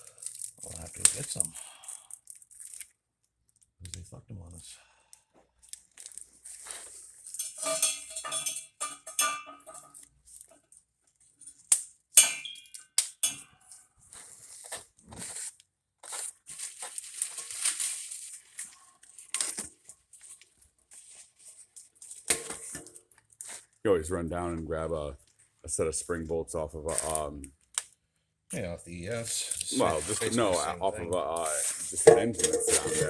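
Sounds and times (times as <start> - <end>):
packaging rustling and crinkling: 0.0 - 3.0, 5.6 - 7.5, 14.1 - 23.8
metal parts clinking and rattling: 7.2 - 10.6.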